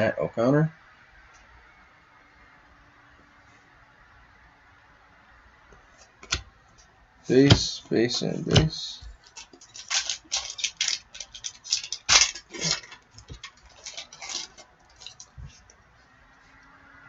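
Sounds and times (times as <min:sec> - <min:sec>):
trading cards shuffling: 0:07.3 - 0:15.8.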